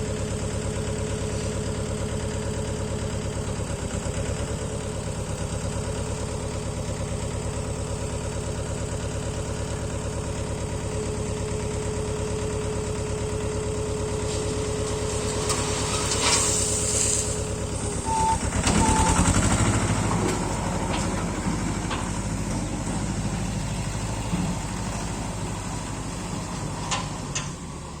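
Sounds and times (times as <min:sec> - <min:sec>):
tractor diesel engine running: 0:00.0 - 0:28.0
short hiss: 0:15.5 - 0:17.6.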